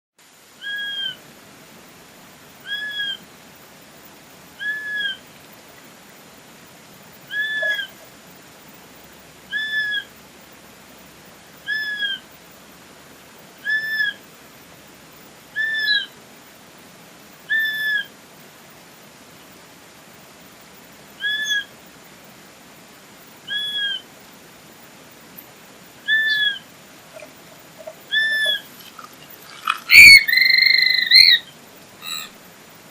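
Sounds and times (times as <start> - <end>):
flycatcher whistled call: 4.6 - 5.2, 7.3 - 8.0, 26.0 - 26.6, 27.2 - 32.3.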